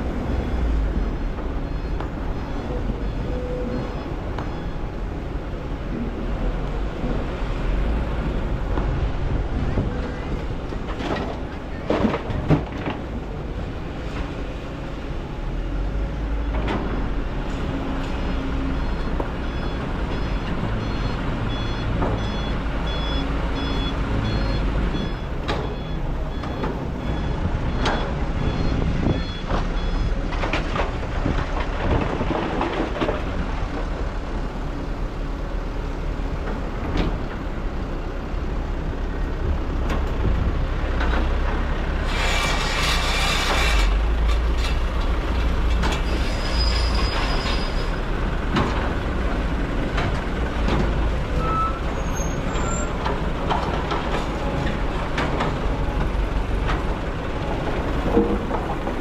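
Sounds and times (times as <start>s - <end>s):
excavator diesel engine running: 0.0s - 59.0s
electronic alarm beeping: 18.8s - 30.1s.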